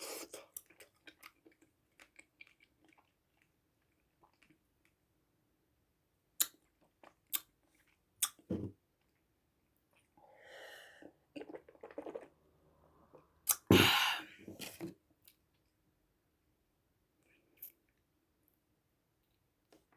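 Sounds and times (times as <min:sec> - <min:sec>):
mouth eating sounds: 0:11.3 - 0:12.4, 0:13.1 - 0:14.7
breathy rush: 0:13.7 - 0:14.4.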